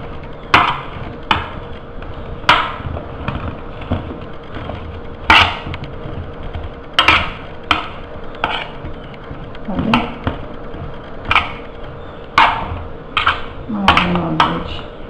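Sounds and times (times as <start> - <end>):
potatoes knocking against baking tray: 0.0 - 14.9.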